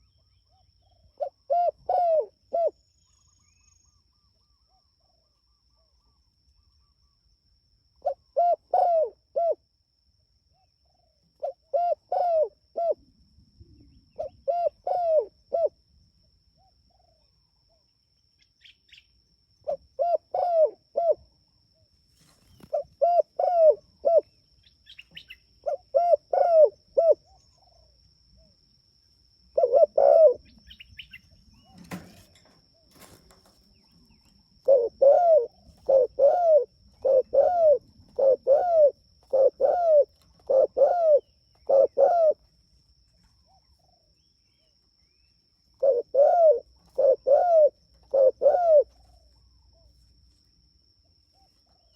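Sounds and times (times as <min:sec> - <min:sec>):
dove cooing: 0:00.0 - 0:02.8, 0:08.0 - 0:09.6, 0:10.8 - 0:13.1, 0:14.1 - 0:15.8, 0:19.6 - 0:21.3, 0:22.2 - 0:28.0, 0:29.5 - 0:42.5, 0:45.8 - 0:50.0.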